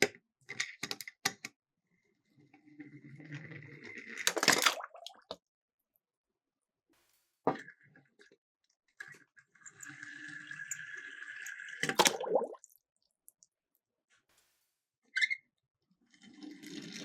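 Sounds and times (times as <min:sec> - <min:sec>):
splash into water: 0:04.4 - 0:05.4, 0:11.9 - 0:12.7
toy car rolling with whirring rattle: 0:16.1 - 0:17.0.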